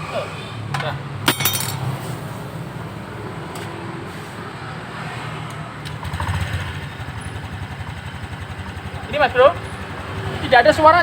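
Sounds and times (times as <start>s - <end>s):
scooter engine idling: 5.9s - 11.0s.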